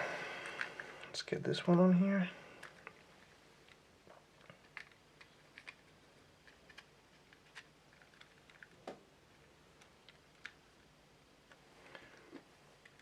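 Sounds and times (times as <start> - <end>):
plastic parts clicking: 4.4 - 10.6, 12.8 - 13.0.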